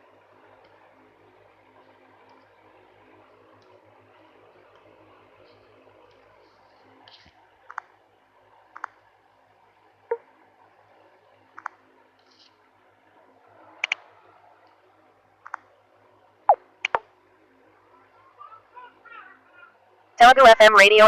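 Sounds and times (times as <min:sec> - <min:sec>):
sharp short clicks: 0:16.8 - 0:17.0.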